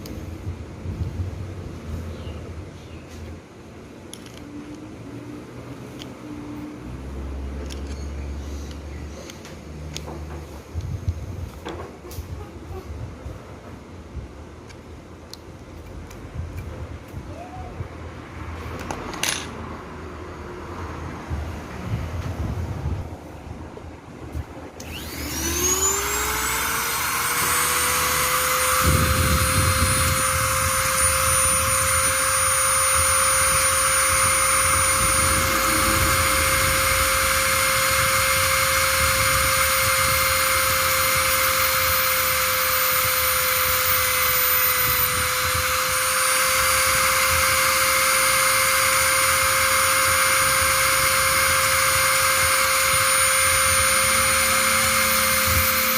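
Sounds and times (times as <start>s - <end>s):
small electric motor whine: 24.8s - 55.9s.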